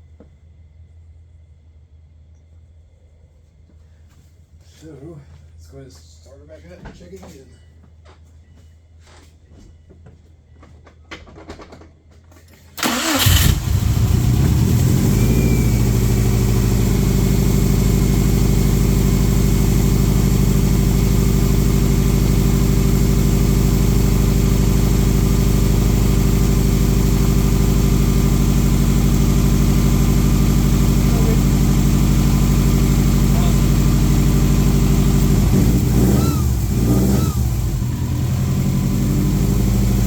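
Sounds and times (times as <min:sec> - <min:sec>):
car engine cranking and starting: 0:12.7 - 0:40.0
car engine idling: 0:12.8 - 0:40.0.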